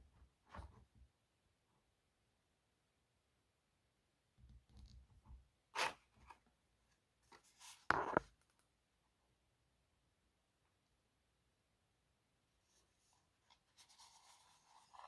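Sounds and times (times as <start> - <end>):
light scraping: 7.4 - 8.3.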